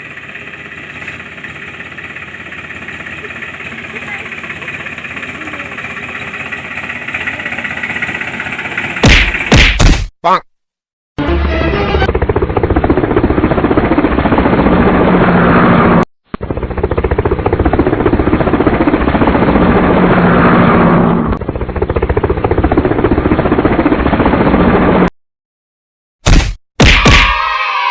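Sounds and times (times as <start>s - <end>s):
engine chugging: 0.0s - 9.6s, 16.4s - 20.2s.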